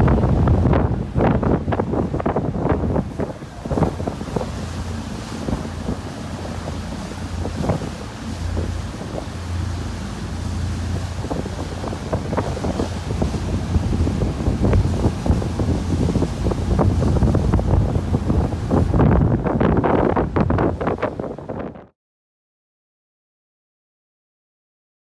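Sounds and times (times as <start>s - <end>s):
boat engine drone: 0.0s - 21.8s
wind buffeting microphone: 0.0s - 21.9s.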